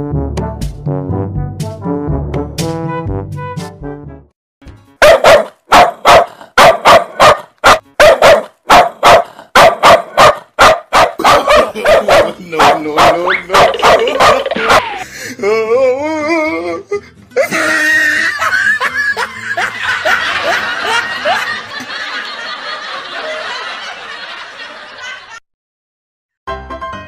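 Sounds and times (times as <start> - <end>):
music: 0.0 - 5.1, 7.8 - 8.1, 12.4 - 21.9, 26.5 - 27.0
dog barking: 5.0 - 14.9
people laughing: 11.2 - 15.2, 17.4 - 25.4.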